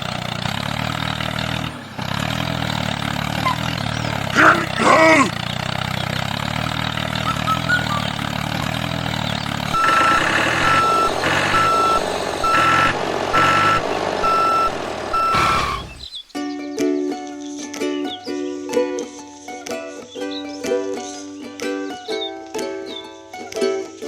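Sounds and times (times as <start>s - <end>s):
motor running: 0.0s - 16.2s
vehicle reversing alarm beeps: 6.8s - 16.2s.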